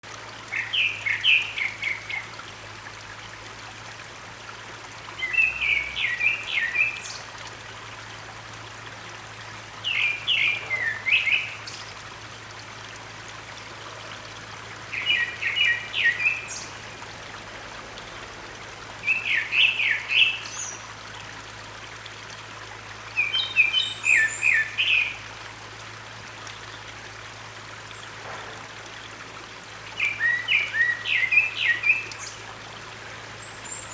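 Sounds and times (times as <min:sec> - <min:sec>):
mountain stream rushing: 0:00.0 - 0:33.9.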